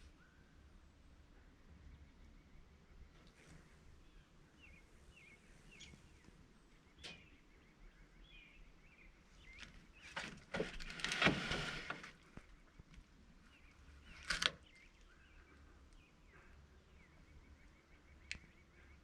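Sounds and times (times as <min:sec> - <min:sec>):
small birds chirping: 0:01.4 - 0:19.0
rustling noise: 0:10.1 - 0:12.2.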